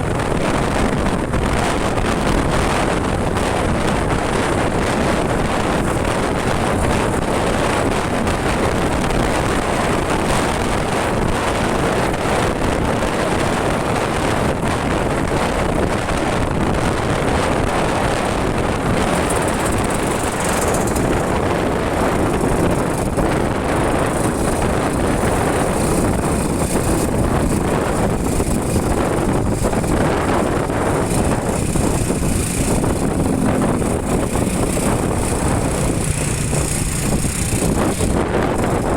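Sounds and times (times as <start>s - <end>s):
motorcycle engine: 0.0s - 38.9s
road noise: 0.0s - 38.9s
wind on microphone: 0.0s - 38.9s.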